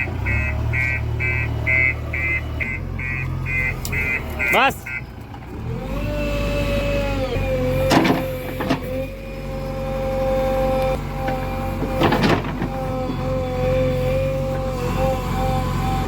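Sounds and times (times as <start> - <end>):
diesel machinery rumbling with whine: 0.0 - 16.0
clanking knocks: 7.8 - 9.1, 11.1 - 13.3.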